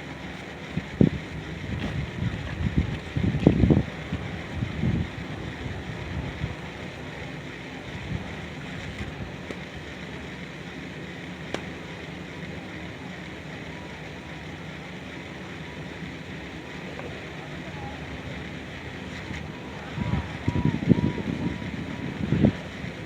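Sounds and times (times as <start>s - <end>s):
wind rumble on microphone: 0.0s - 7.1s, 7.8s - 9.4s, 17.7s - 23.0s
steady hiss: 0.0s - 23.0s.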